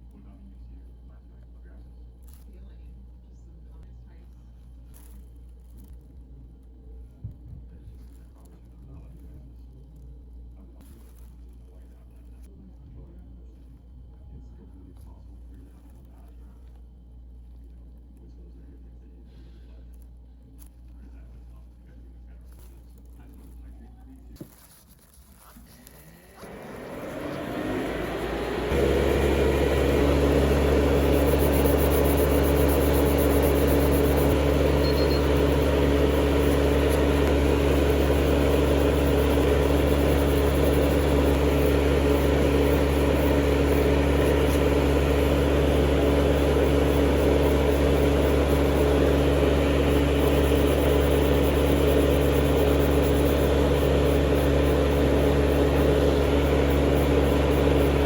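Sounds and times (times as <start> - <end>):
nail drill motor spinning: 25.9 - 58.0.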